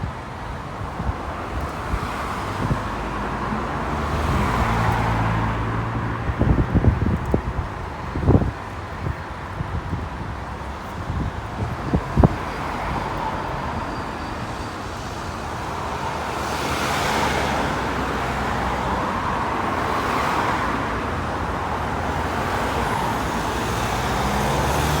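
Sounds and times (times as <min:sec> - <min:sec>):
vehicles driving past: 0:00.8 - 0:25.0.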